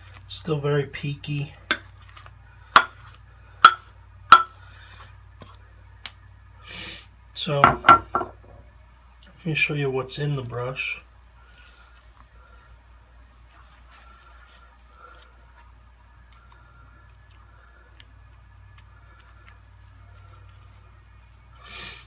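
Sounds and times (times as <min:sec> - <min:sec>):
low steady hum: 0:00.0 - 0:22.0
soft wet squishes of lather: 0:11.5 - 0:21.6.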